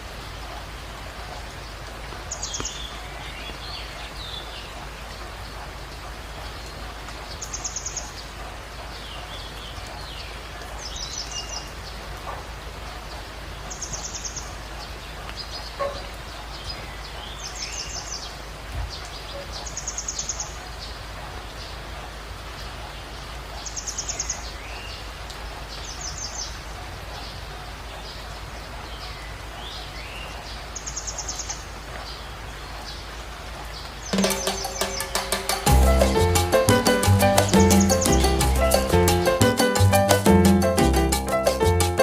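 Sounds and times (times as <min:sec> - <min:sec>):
steady hiss: 0:34.0 - 0:42.0
bird high-pitched trill: 0:36.8 - 0:38.9.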